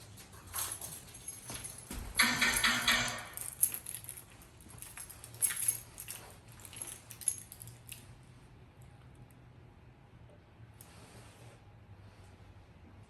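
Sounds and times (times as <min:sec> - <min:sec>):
keys jangling: 0:00.0 - 0:08.2.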